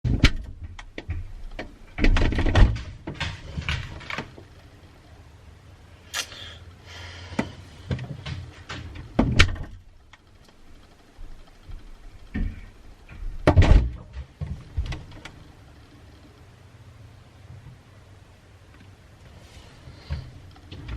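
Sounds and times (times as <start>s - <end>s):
knocks and thuds: 0.0s - 4.4s, 7.4s - 9.8s, 11.7s - 15.1s
rustling: 18.6s - 20.9s.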